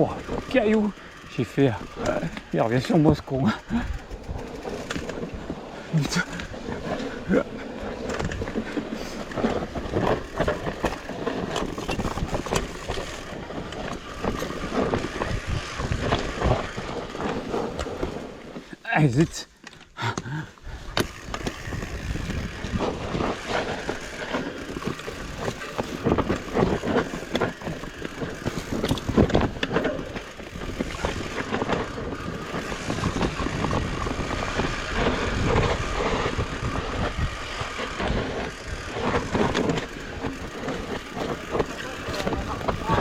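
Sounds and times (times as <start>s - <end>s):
bike knocking and rattling: 0.0s - 43.0s
bike tyres rumbling on rocky trail: 0.0s - 43.0s
wind on microphone: 8.0s - 18.2s, 20.7s - 43.0s.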